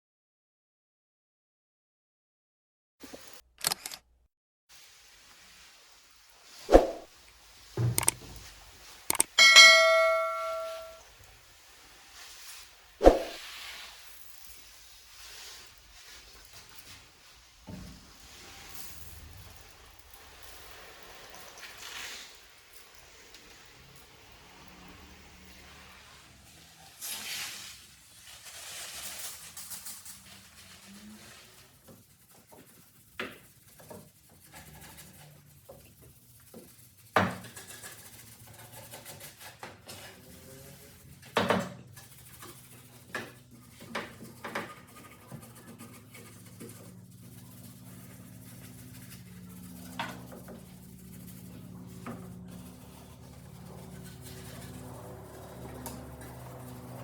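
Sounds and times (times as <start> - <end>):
hard objects knocking and clicking: 7.8 - 8.4.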